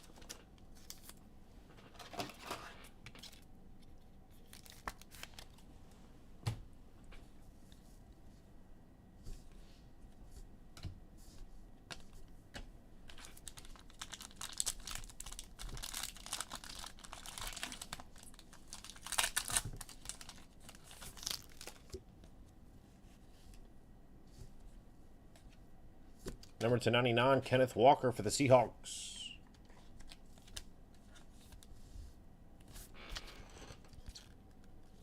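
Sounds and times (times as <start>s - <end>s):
foil wrappers crinkling: 4.4s - 5.6s, 13.1s - 22.0s.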